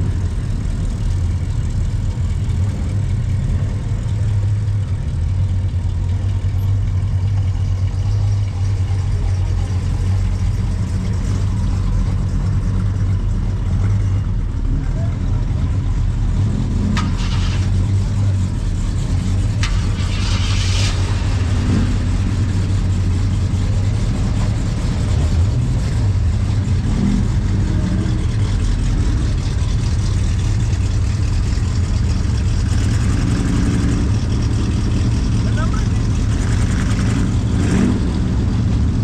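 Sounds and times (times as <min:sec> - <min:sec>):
car engine running: 0:00.0 - 0:39.0.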